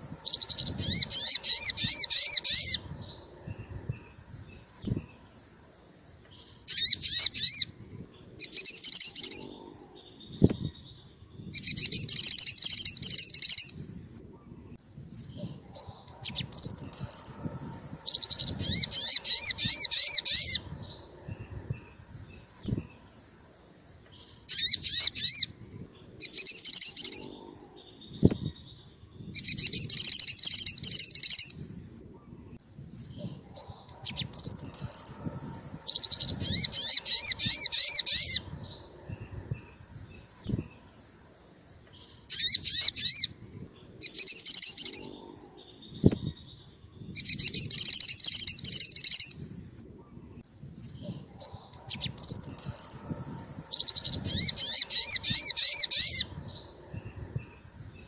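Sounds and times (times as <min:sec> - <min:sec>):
songbird singing high trills: 0:00.0 - 0:58.0.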